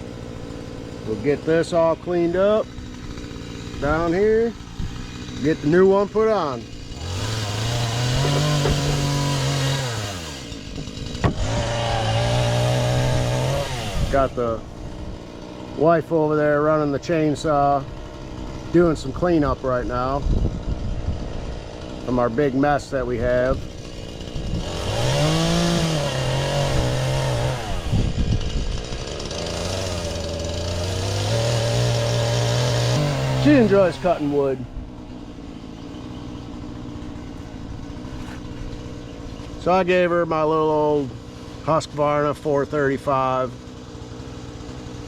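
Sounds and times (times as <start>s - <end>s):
chainsaw cutting wood: 0.0s - 45.0s.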